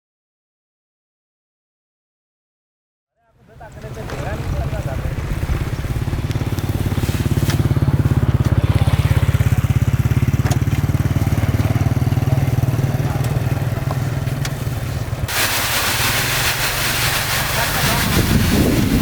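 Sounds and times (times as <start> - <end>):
diesel engine throbbing: 3.5 - 19.0
loud hiss: 15.2 - 19.0.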